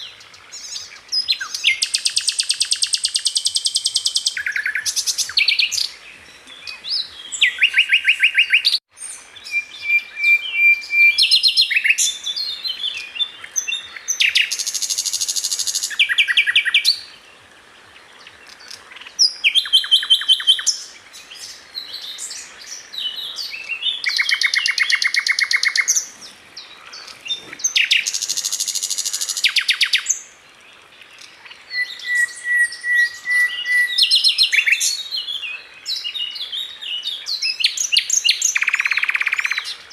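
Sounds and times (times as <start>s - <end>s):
bird trilling and chattering: 23.3s - 30.2s
bird steady whistle: 31.7s - 35.0s, 37.6s - 39.7s.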